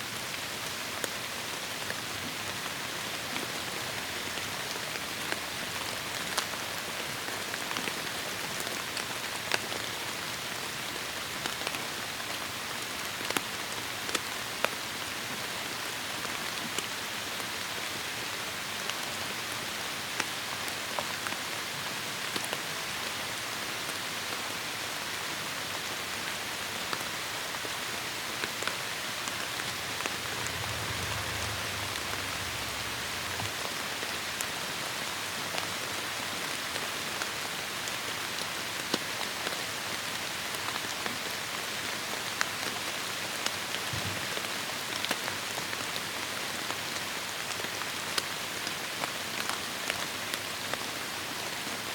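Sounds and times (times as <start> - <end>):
heavy rain falling: 26.3 - 38.7
faint low rumble: 28.6 - 34.5.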